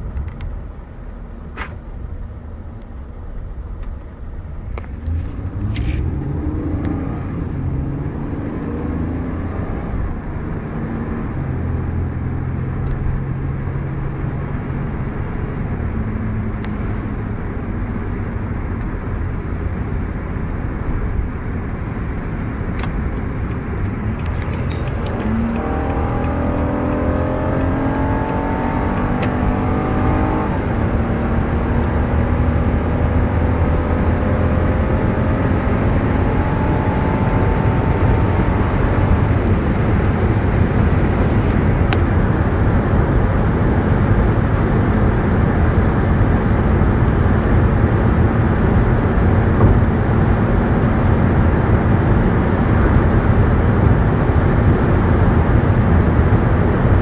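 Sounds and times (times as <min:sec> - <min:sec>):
car engine accelerating: 0:00.0 - 0:57.0
wind and road noise: 0:00.0 - 0:57.0.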